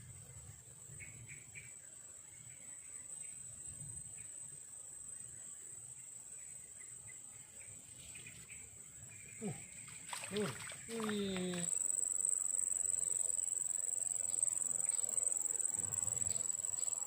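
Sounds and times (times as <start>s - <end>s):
short insect chirps: 6.4s - 17.0s
high-pitched insect drone: 9.4s - 17.0s.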